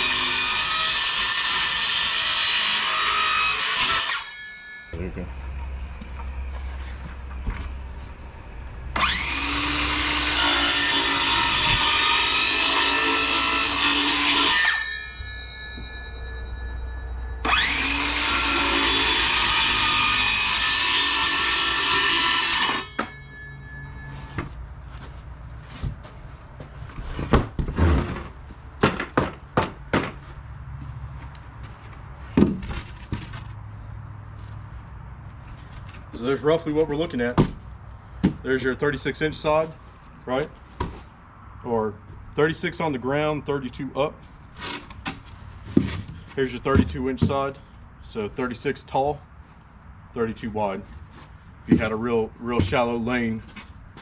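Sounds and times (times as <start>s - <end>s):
circular saw cutting plywood: 0.0s - 4.4s, 8.9s - 15.2s, 17.4s - 24.1s
sharp knocks and clatter: 27.2s - 30.2s.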